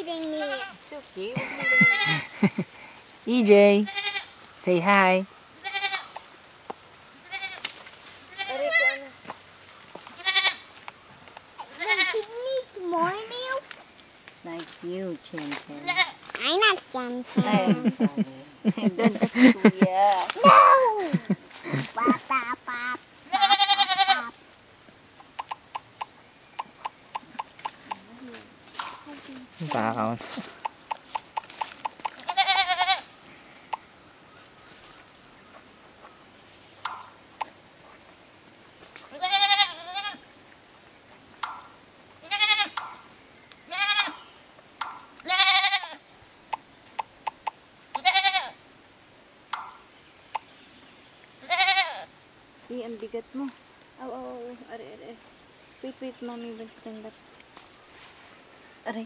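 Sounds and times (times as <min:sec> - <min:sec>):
goat bleating: 0:01.4 - 0:02.3, 0:03.8 - 0:04.3, 0:05.6 - 0:06.1, 0:07.2 - 0:07.6, 0:08.3 - 0:09.0, 0:10.2 - 0:10.6, 0:11.7 - 0:12.2, 0:15.8 - 0:16.2, 0:21.7 - 0:24.3, 0:32.2 - 0:33.1, 0:39.1 - 0:40.2, 0:42.2 - 0:42.8, 0:43.7 - 0:44.2, 0:45.2 - 0:46.0, 0:47.9 - 0:48.6, 0:51.4 - 0:52.1.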